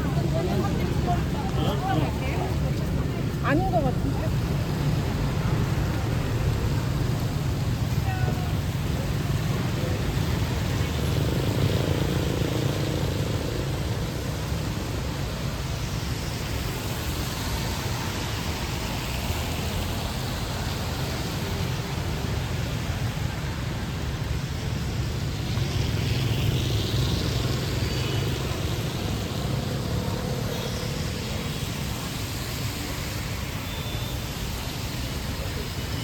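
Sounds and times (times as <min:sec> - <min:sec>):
low traffic rumble: 0:00.0 - 0:36.0
rain hiss: 0:00.0 - 0:36.0.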